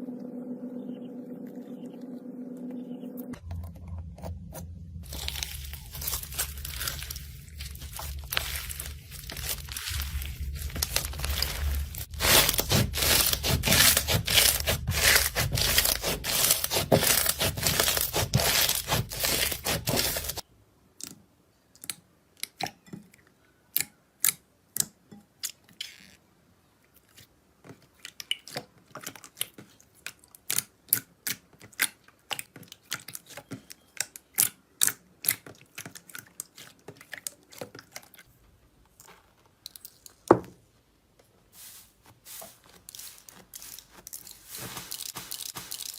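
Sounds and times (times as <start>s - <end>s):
crunchy material crushed by hand: 5.0s - 20.4s, 41.7s - 45.9s.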